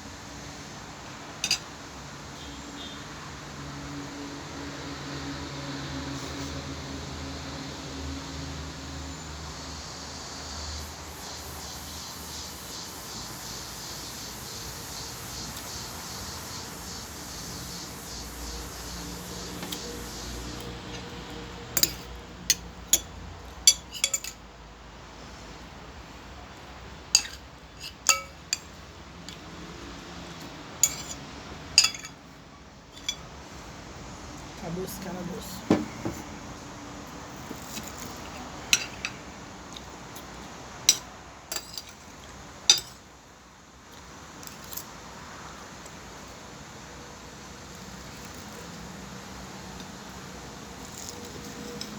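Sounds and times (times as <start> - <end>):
steady background noise: 0.0 - 51.9
cutlery clinking on plate: 1.4 - 1.6, 21.8 - 23.1, 23.7 - 24.4, 27.2 - 28.7, 30.8 - 31.2, 31.8 - 32.2, 38.8 - 39.2, 40.9 - 42.0, 42.7 - 43.0.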